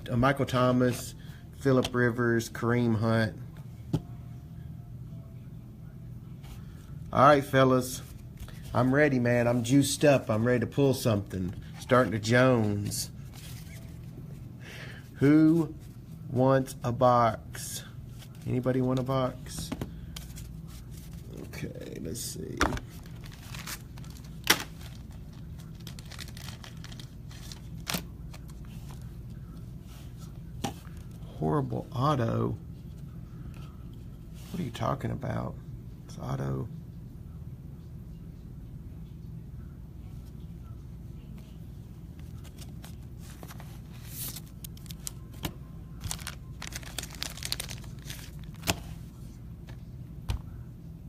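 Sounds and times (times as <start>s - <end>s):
steady low hum: 0.0s - 51.0s
card pack wrapper crinkling and tearing: 22.7s - 28.6s, 42.3s - 49.0s.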